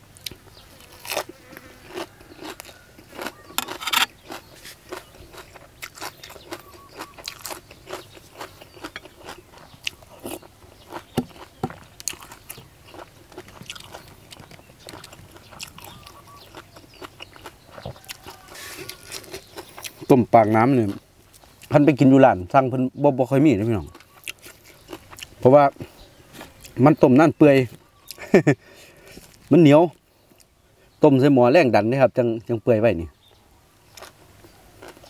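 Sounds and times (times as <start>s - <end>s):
person chewing and crunching: 0.2s - 21.8s, 23.8s - 27.0s, 33.9s - 35.0s.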